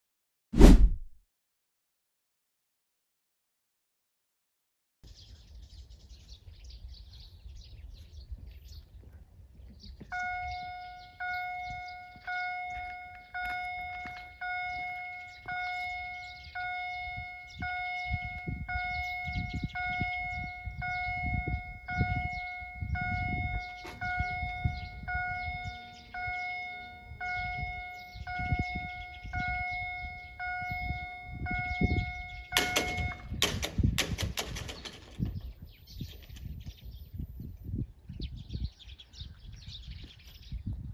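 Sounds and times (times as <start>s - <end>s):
level crossing bells dinging: 10.2s - 33.3s.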